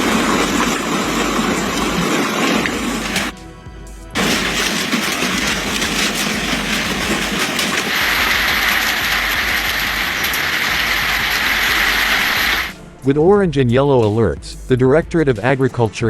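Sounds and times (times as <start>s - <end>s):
heavy hail rattling: 0.0s - 3.4s, 4.1s - 12.8s.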